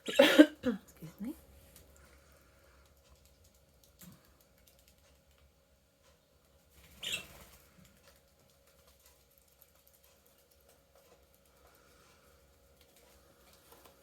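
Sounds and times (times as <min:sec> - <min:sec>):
beaks and claws tapping: 0:01.7 - 0:14.0
bird chirp: 0:06.9 - 0:07.4.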